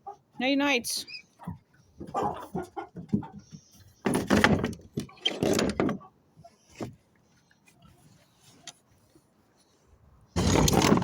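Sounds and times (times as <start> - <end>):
chickens clucking: 1.3 - 4.1.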